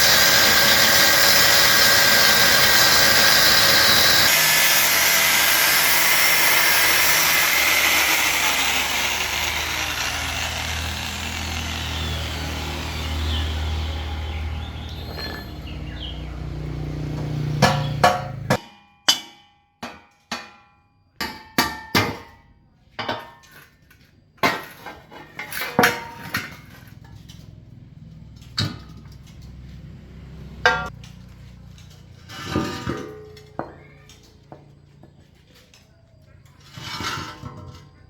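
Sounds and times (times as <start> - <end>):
power tool running: 0.0 - 18.0
hammer striking metal: 17.5 - 22.3.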